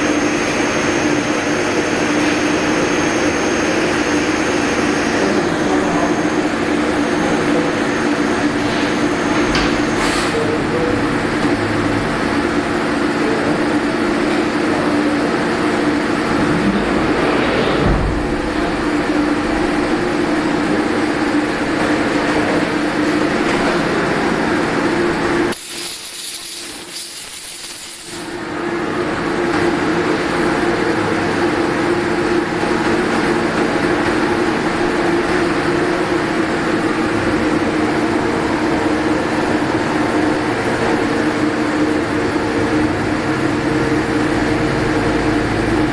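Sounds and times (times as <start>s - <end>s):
lathe machine hum: 0.0s - 25.6s.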